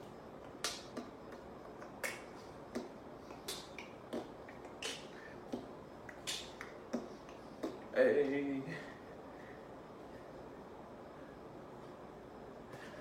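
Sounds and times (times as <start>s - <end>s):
sharp rhythmic clicks: 0.4s - 8.4s.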